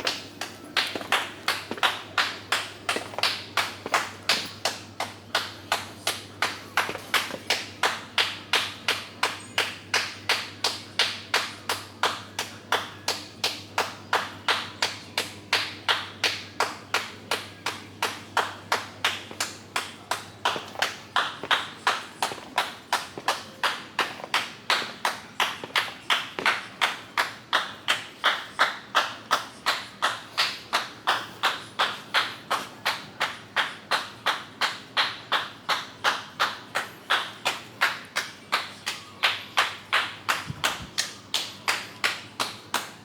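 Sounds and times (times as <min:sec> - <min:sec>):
brisk footsteps on hard path: 0:00.0 - 0:04.6, 0:06.8 - 0:07.5, 0:20.5 - 0:26.5.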